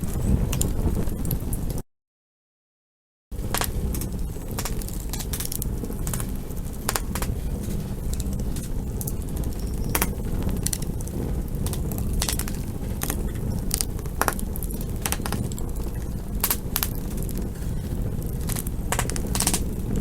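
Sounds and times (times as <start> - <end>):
campfire wood crackling and popping: 0.0 - 1.8, 3.4 - 20.0
low rumble of flames: 0.0 - 1.8, 3.3 - 20.0.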